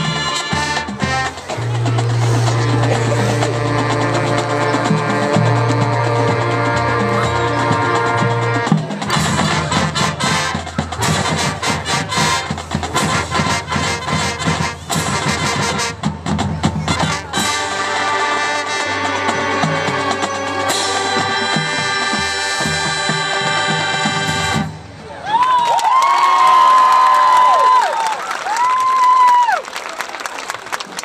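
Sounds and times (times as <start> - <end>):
brass sustained chords: 0.0 - 16.0, 16.9 - 24.9
rapid percussion hits: 0.0 - 24.9
marching band playing: 0.0 - 25.2.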